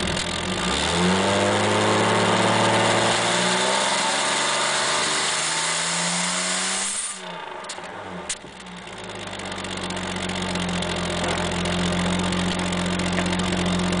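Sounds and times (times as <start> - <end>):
car engine idling: 0.0 - 0.9, 6.9 - 14.0.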